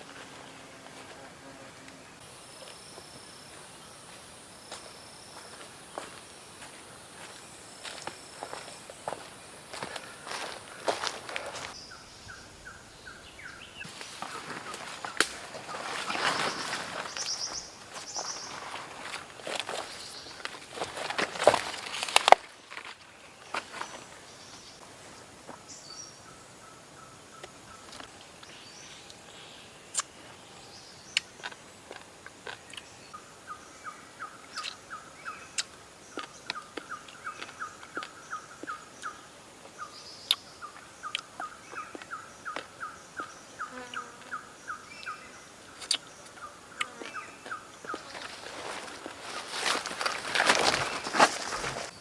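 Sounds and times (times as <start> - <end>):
footsteps: 0.0 - 11.8, 13.8 - 24.6, 47.8 - 52.0.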